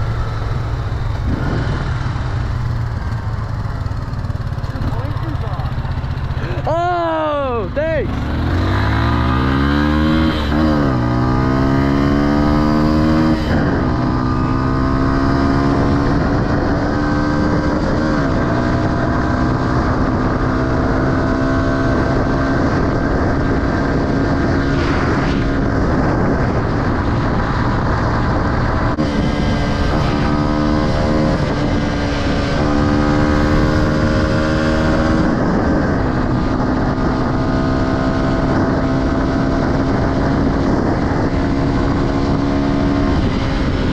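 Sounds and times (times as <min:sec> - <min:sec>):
dirt bike engine revving: 0:07.8 - 0:36.0.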